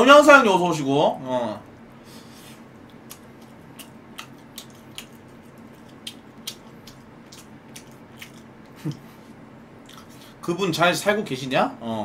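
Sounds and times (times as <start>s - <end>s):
man chewing with mouth open: 2.4s - 10.4s.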